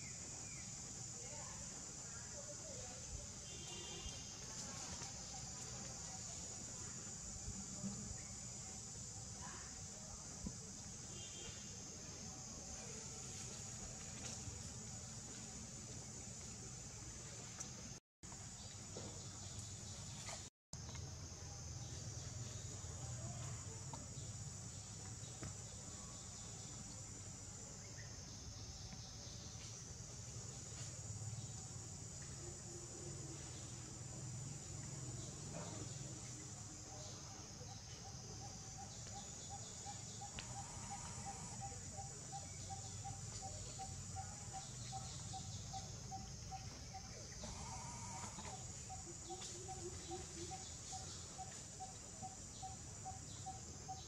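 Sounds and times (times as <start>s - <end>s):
high-pitched insect chorus: 20.8s - 54.0s
high-pitched insect buzz: 38.8s - 43.2s, 47.0s - 50.8s.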